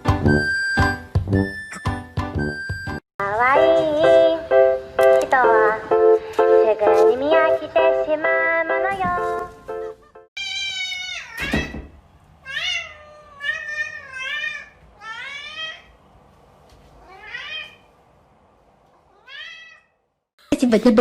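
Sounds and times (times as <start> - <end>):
cat meowing: 10.4 - 11.8, 12.4 - 16.0, 17.0 - 17.9, 19.1 - 20.0.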